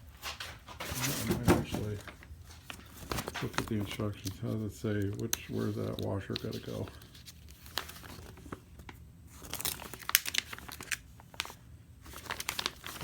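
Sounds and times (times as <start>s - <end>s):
paper rustling and crinkling: 0.0s - 13.0s.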